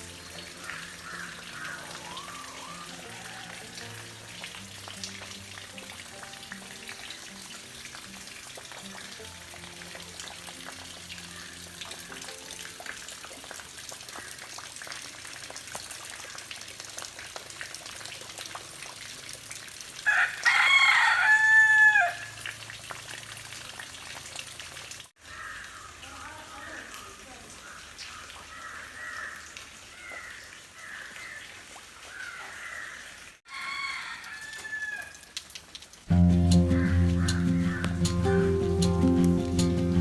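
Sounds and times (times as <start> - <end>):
rooster crowing: 0.7 - 4.1, 20.1 - 22.4, 33.5 - 35.3, 36.7 - 38.0.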